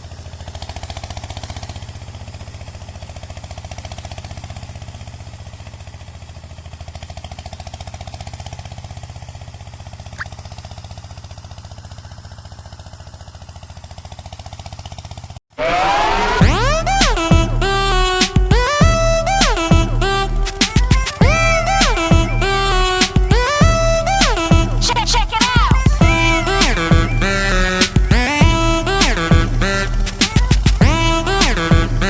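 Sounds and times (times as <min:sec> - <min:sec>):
tractor engine pulsing: 0:15.0 - 0:32.0
electronic music: 0:15.6 - 0:32.0.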